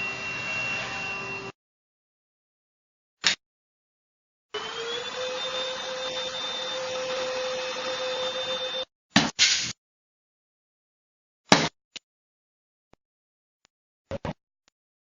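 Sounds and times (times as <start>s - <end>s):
stick vacuum motor whining: 0.0s - 1.5s, 4.5s - 8.9s.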